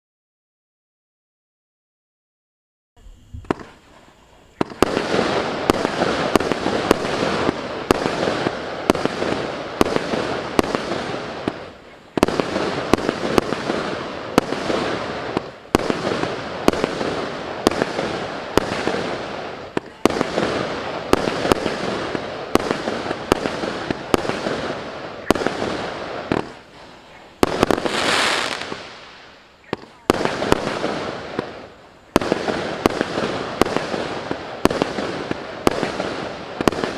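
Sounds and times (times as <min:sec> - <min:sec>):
firework hissing: 0:03.0 - 0:36.9
fireworks bursting and crackling: 0:03.0 - 0:36.9
firework launch thumps: 0:03.3 - 0:03.8.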